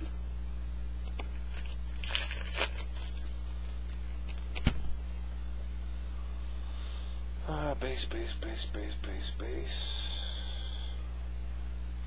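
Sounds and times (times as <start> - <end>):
low electrical hum: 0.0 - 12.0
foil wrapper tearing and crinkling: 1.1 - 4.8.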